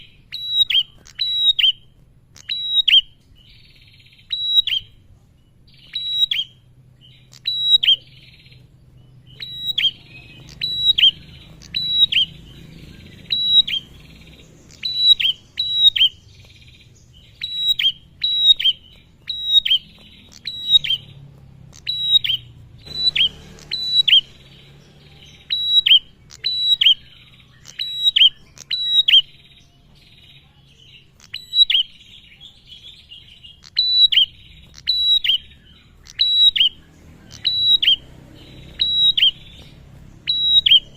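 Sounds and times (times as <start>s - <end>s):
bird calling sharp chip notes: 9.3s - 29.5s.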